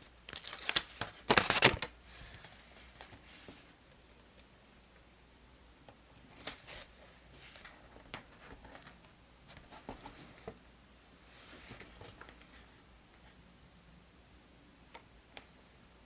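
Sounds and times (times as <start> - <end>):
paper rustling: 0.3 - 3.7.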